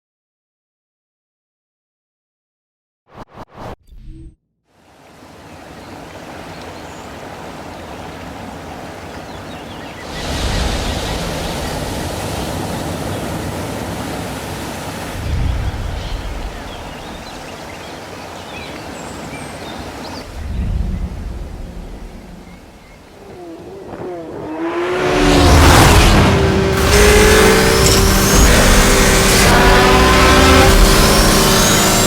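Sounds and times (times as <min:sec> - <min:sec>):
steady rushing noise: 0:05.2 - 0:23.2, 0:24.2 - 0:32.0
deep low rumble: 0:20.3 - 0:23.0.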